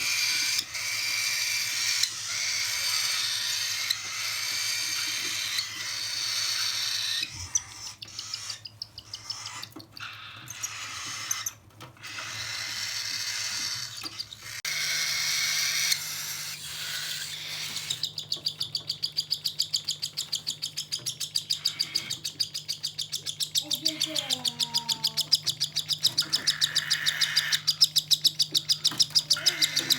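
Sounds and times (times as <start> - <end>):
raspy chick begging calls: 0.0 - 29.9
fast pulsing chick call: 21.4 - 29.9.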